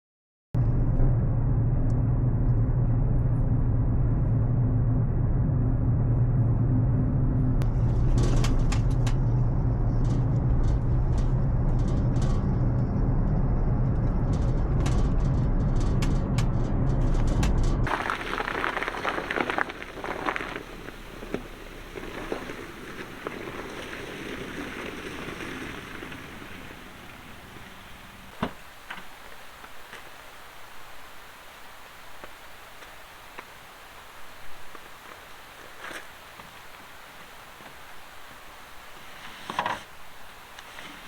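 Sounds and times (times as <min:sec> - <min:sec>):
car driving rumble: 0:00.6 - 0:41.0
hissing crackle: 0:17.8 - 0:41.0.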